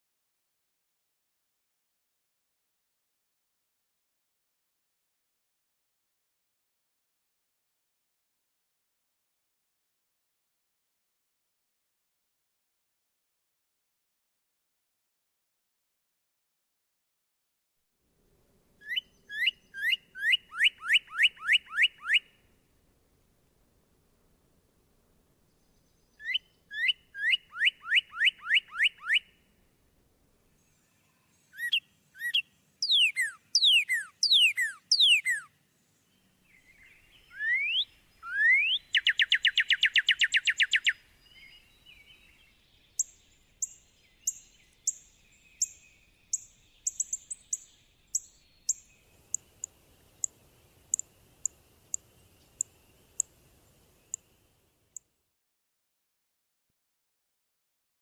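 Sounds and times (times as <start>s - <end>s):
bird whistles: 18.8s - 22.3s, 26.2s - 29.3s, 31.6s - 35.5s, 36.8s - 42.0s
bird trill: 18.8s - 22.4s, 26.1s - 29.4s, 31.1s - 35.5s, 36.2s - 54.4s.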